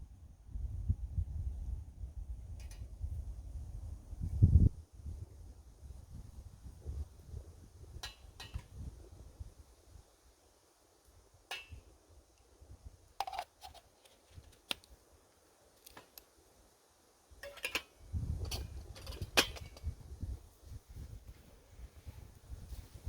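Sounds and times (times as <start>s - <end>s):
wind rumbling on microphone: 0.0s - 10.1s, 18.0s - 23.0s.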